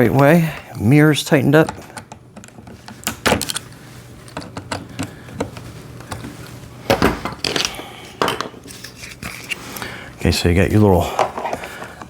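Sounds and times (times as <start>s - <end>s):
clicks and knocks of parts handled: 1.6s - 9.6s
parts clattering: 1.6s - 9.6s, 11.0s - 12.0s.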